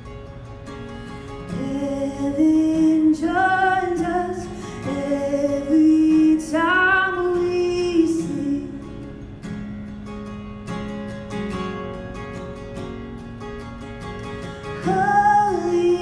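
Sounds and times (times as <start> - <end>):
acoustic guitar: 0.0 - 16.0
woman singing worship song: 1.5 - 9.1, 14.8 - 16.0.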